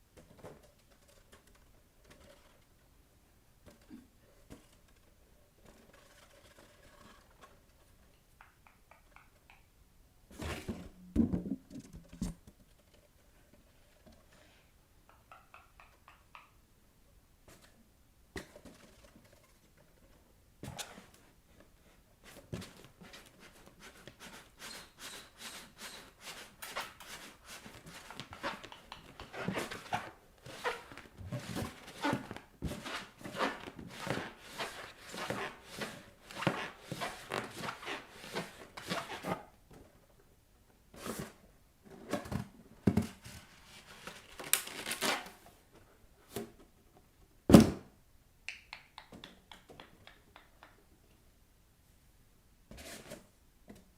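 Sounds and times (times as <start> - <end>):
bare feet rubbing on balloon: 23.6 - 39.4.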